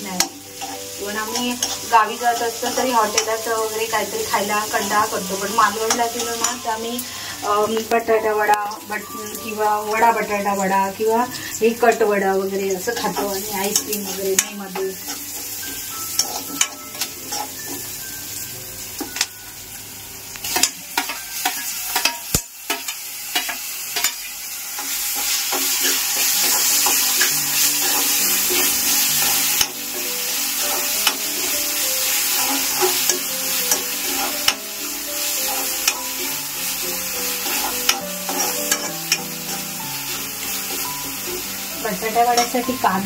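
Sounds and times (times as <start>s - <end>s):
vegetables sizzling in oil: 0.0s - 43.0s
metal spoon scraping pan: 35.4s - 41.4s.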